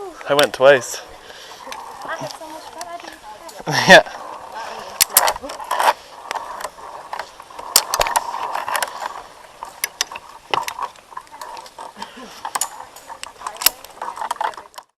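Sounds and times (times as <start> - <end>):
sharp clicks and knocks: 4.9 - 15.0.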